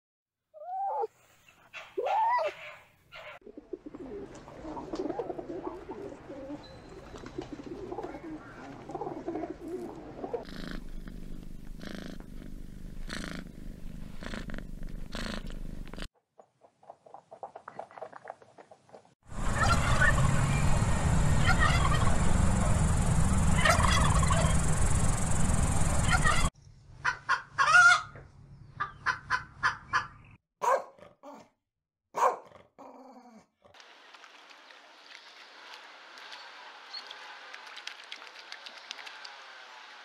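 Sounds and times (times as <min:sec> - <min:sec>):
pigeons cooing: 0:03.2 - 0:16.1, 0:19.4 - 0:26.5
wings flapping: 0:04.0 - 0:10.0, 0:19.4 - 0:26.5, 0:34.1 - 0:40.0.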